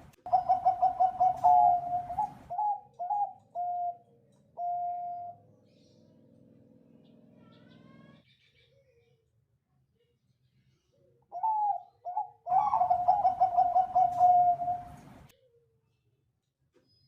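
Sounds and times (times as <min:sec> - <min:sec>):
dove rolling coo: 0:00.0 - 0:05.4, 0:11.4 - 0:15.3.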